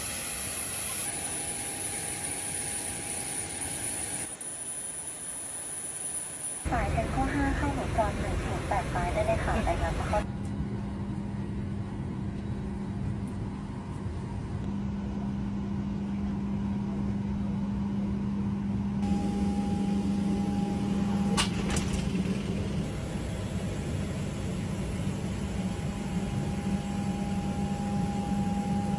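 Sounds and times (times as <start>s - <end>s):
mechanical drone: 19.0s - 28.9s
steady higher tone: 19.0s - 28.9s.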